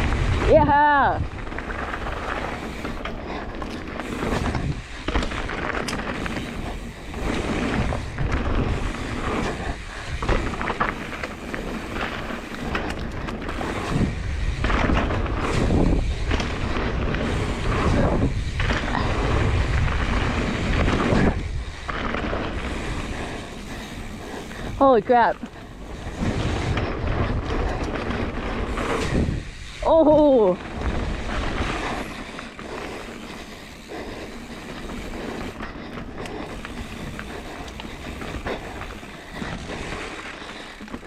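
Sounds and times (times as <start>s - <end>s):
wind buffeting microphone: 0.0s - 40.8s
rolling and scraping noise: 0.0s - 41.0s.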